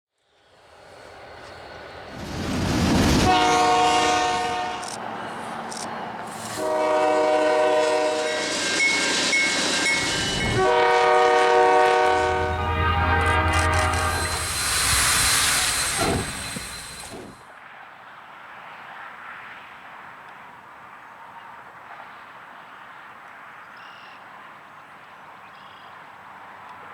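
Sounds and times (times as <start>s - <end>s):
train air horn blasts: 3.2s - 5.2s, 6.3s - 17.3s.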